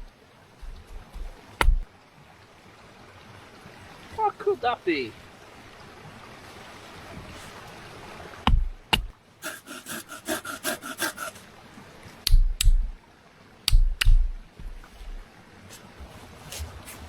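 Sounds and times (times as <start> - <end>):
hand saw strokes: 0.0 - 1.8, 8.5 - 11.5, 12.3 - 13.0, 13.7 - 17.0
wood knocking and thudding: 0.0 - 1.9, 8.5 - 9.1, 12.3 - 13.0, 13.7 - 15.2.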